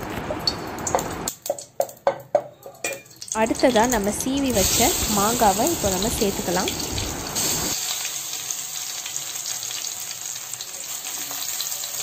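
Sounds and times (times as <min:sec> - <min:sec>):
mango sizzling in hot ghee: 0:03.1 - 0:12.0.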